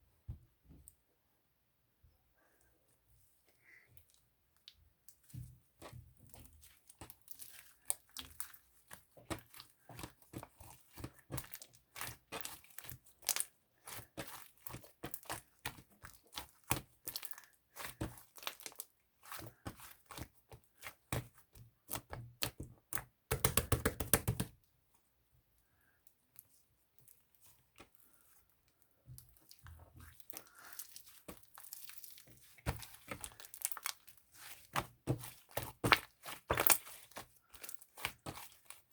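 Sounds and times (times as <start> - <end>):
crinkly material rustling: 26.4 - 38.9.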